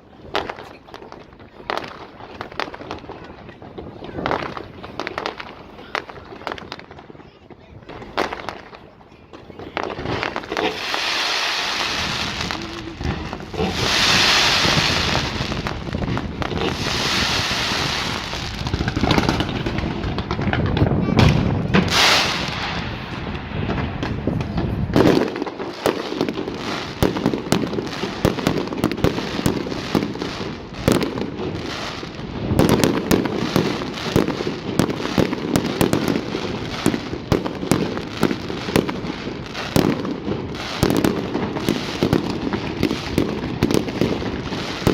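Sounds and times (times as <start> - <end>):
fireworks bangs and crackles: 0.0 - 44.9
fireworks hissing bursts: 9.6 - 44.9.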